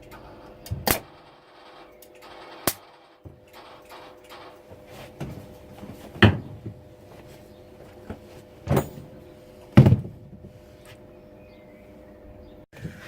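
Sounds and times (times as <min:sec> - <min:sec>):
loud noisy welding bursts: 0:00.2 - 0:05.7.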